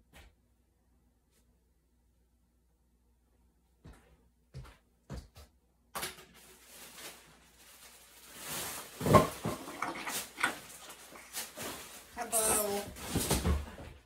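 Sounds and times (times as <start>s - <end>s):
rustling and handling objects: 6.0s - 14.0s.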